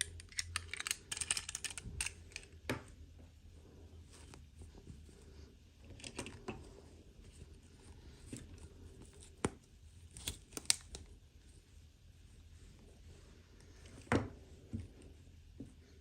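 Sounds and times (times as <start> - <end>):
plastic toy pieces clicking: 0.0 - 2.5.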